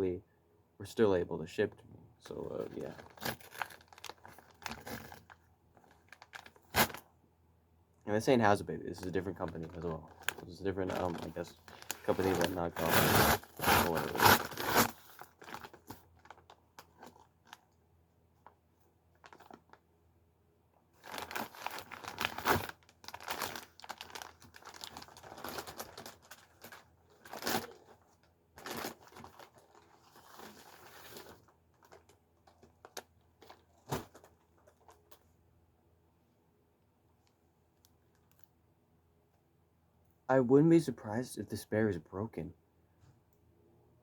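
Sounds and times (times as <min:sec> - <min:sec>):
packaging crinkling and tearing: 0:02.8 - 0:07.0, 0:09.0 - 0:17.6, 0:19.2 - 0:19.8, 0:21.0 - 0:28.0, 0:28.6 - 0:35.2.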